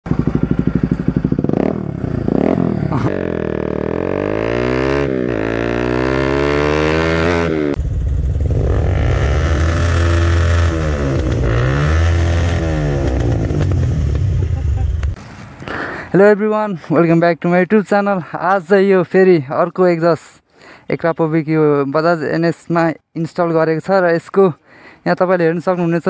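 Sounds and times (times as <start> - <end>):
motorcycle engine revving: 0.1 - 15.2.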